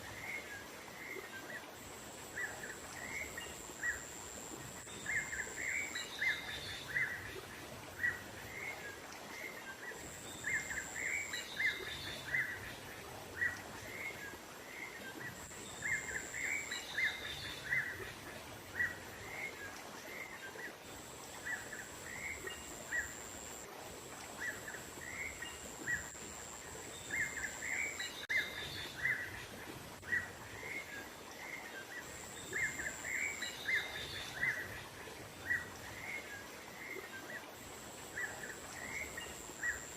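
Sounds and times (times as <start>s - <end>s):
thin high whine: 0.0s - 13.0s
outdoor background hiss: 0.0s - 39.9s.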